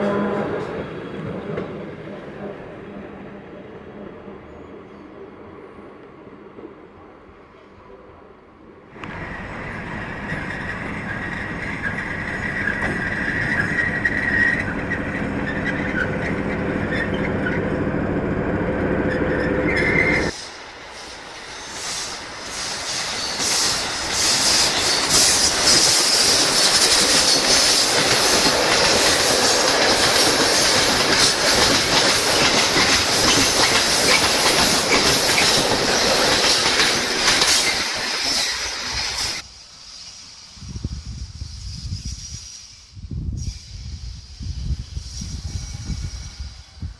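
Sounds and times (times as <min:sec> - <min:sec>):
locomotive engine hum: 0:09.0 - 0:20.4
clattering train wheels: 0:09.0 - 0:40.2
high wheel squeal: 0:09.1 - 0:40.4.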